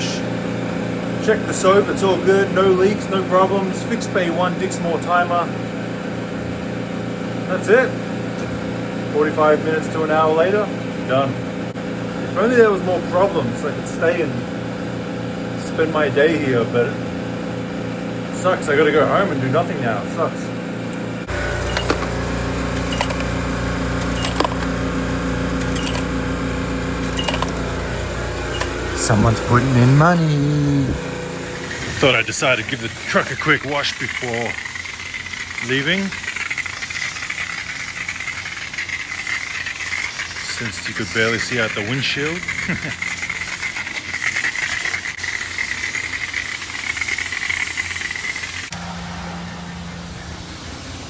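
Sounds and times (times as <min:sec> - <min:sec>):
machine hum: 0:21.1 - 0:35.5
sharp clicks and metallic clinks: 0:21.3 - 0:24.8, 0:25.5 - 0:26.2, 0:26.9 - 0:30.5.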